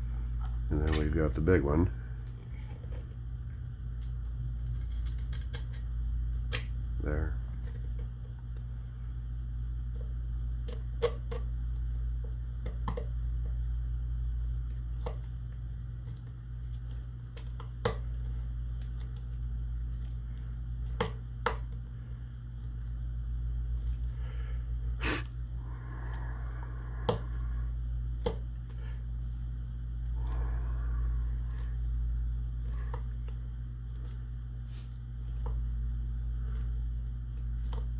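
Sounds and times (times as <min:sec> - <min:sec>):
steady low hum: 0:00.0 - 0:37.9
metal parts clicking and tapping: 0:04.7 - 0:05.9.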